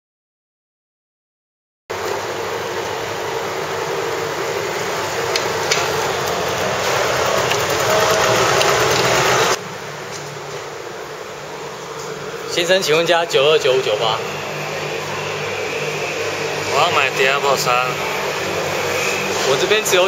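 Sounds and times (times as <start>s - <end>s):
vehicle engine running: 1.9s - 9.6s.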